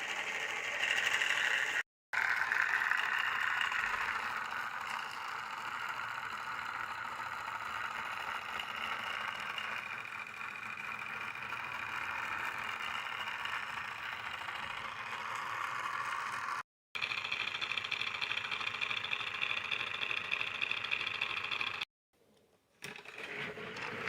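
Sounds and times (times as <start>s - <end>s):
toy motor whirring and rattling: 0.0s - 21.9s.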